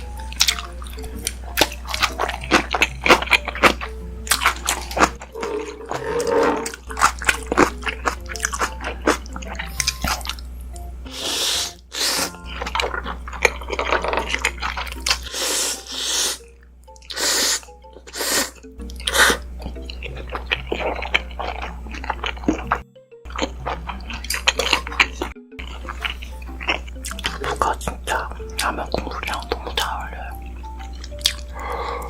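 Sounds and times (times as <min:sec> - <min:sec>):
wet chewing clicks: 0:00.2 - 0:10.9, 0:16.2 - 0:32.0
noodles being slurped: 0:01.6 - 0:10.4, 0:11.1 - 0:22.8.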